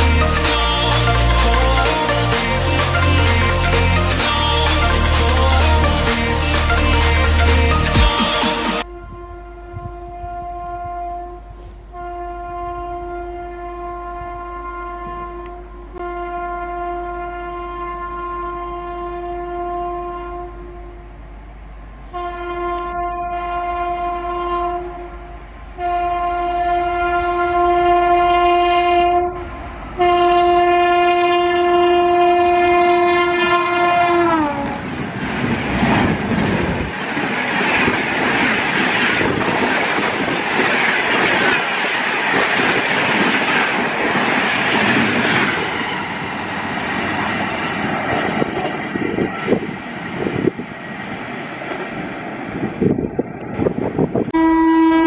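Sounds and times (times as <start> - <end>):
train coaches speeding past: 0.0 - 9.1, 21.1 - 55.0
train horn blasts: 0.0 - 35.0, 54.3 - 55.0.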